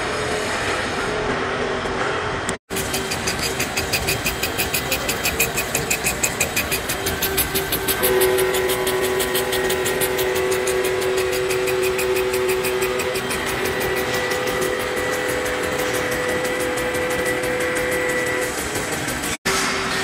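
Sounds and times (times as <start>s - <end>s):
machinery hum: 0.0s - 20.0s
machinery rapid clicking: 2.7s - 19.4s.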